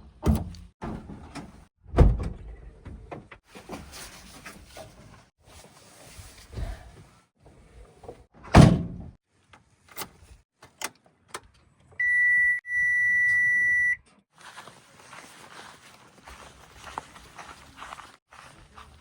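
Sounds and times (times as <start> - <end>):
high-pitched beep: 12.0 - 14.0.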